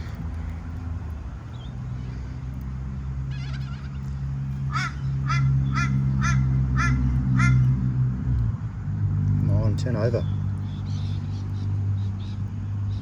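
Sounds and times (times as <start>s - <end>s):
bird warbling call: 3.2s - 7.7s
bird harsh honking calls: 3.2s - 7.8s.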